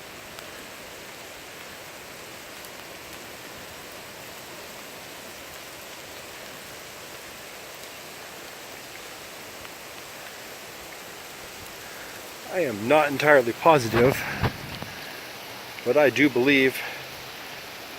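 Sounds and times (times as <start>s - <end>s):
steady rain hiss: 0.0s - 17.9s
raindrop ticks: 0.3s - 4.0s, 5.4s - 17.6s.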